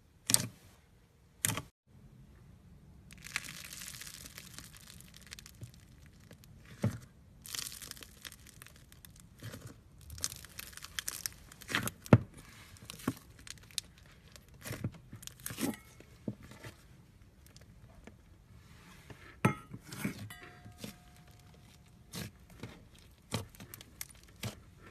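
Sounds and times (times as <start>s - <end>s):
foam slime crackling and popping: 3.1s - 16.0s, 20.8s - 24.9s.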